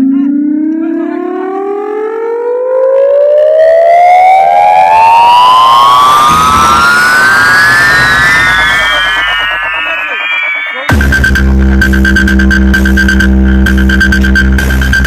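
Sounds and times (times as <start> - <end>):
siren-like rising tone: 0.0 - 15.0
low bass rumble: 5.0 - 15.0.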